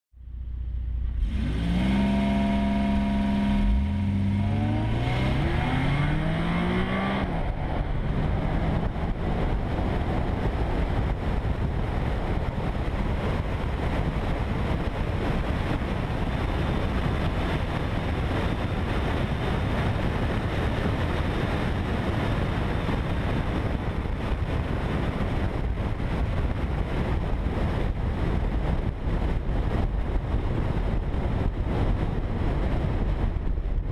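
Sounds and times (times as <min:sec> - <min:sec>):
car engine accelerating: 0:00.2 - 0:22.8
wind and road noise: 0:00.2 - 0:33.9.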